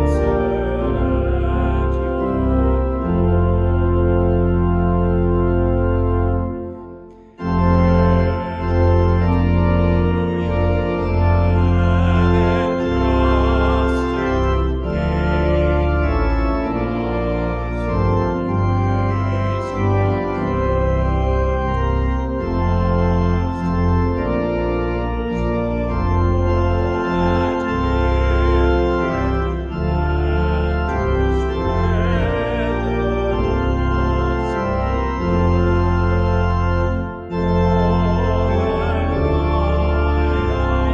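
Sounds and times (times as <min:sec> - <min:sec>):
organ playing sustained chords: 0:00.0 - 0:40.9.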